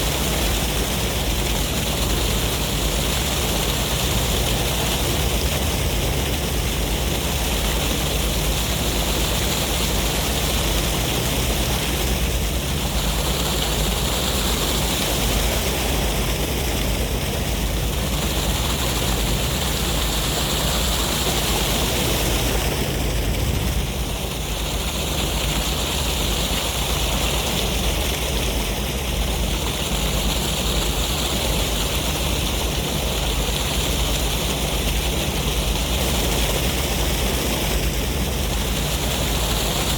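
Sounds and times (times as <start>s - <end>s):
surf rushing: 0.0s - 31.0s
deep wind rumble: 1.1s - 26.0s.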